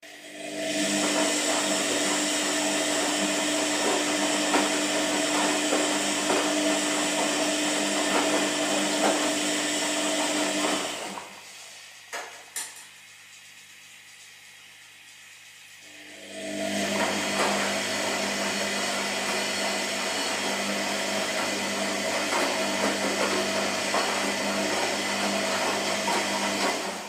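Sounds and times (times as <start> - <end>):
washing machine running: 0.0 - 27.0.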